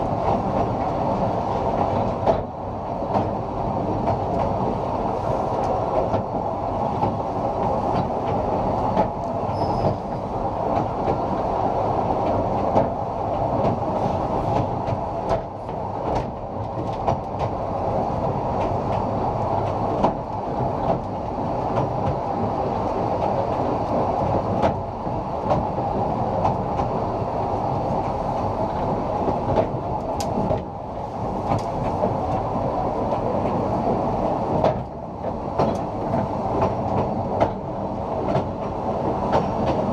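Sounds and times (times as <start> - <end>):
train wheels rumbling on rail: 0.0 - 39.9
wheels clicking over rail joints: 5.6 - 25.8, 34.5 - 39.9.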